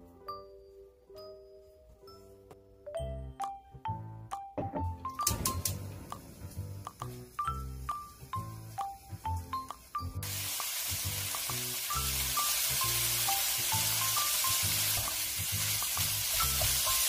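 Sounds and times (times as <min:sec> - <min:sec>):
light music with plucked notes: 0:00.0 - 0:17.0
vegetables sizzling in a wok: 0:06.3 - 0:17.0.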